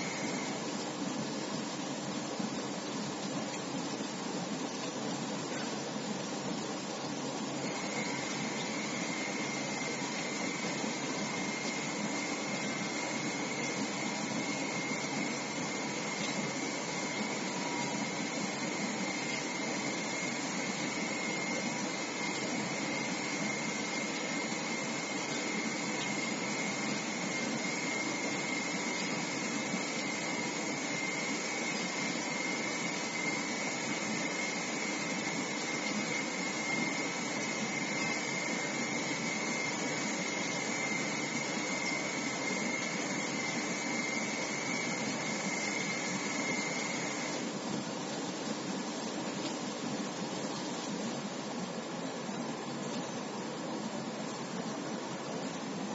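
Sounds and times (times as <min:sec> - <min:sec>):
machine hissing rush: 0:00.0 - 0:00.7
high machine whine: 0:00.0 - 0:55.9.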